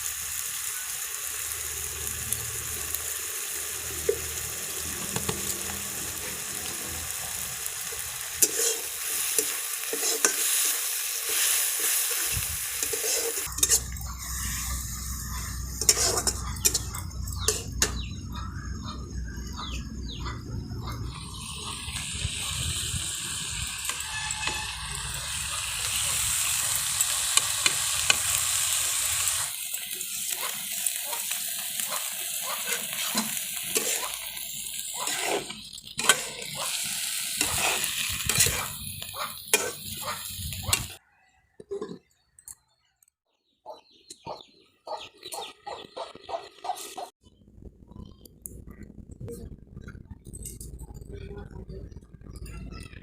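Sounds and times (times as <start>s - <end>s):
food sizzling in a pan: 0.0s - 18.2s, 21.0s - 41.0s
spatula scraping a pan: 8.3s - 17.9s, 23.8s - 25.2s, 32.6s - 34.2s, 34.9s - 40.9s.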